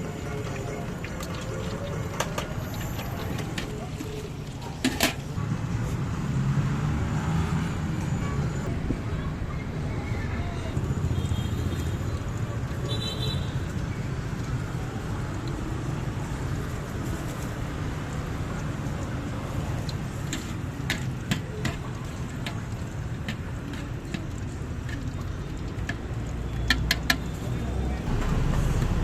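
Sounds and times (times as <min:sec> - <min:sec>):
passing motorbikes and cars: 0:05.0 - 0:23.0, 0:25.0 - 0:29.0.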